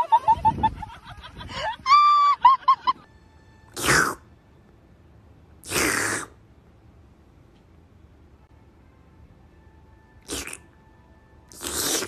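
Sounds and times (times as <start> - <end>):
goose hissing: 3.8 - 4.3, 5.6 - 6.4, 11.5 - 12.0.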